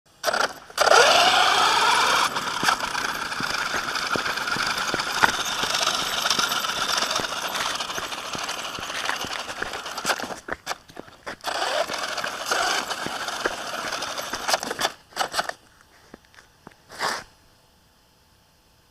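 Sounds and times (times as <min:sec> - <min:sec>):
small nitro engine revving: 0:00.1 - 0:15.6
clicks and crackles: 0:02.0 - 0:16.8.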